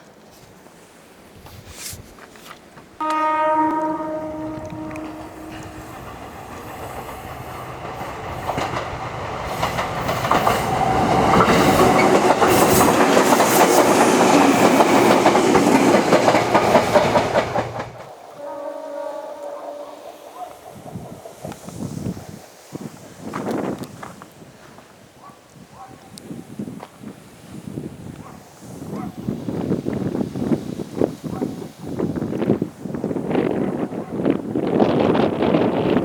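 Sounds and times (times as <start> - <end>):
horn-like tone: 3.0 - 7.4, 18.3 - 20.3
train horn: 3.0 - 8.8, 16.6 - 21.6
train wheels clattering over rail joints: 5.1 - 18.1.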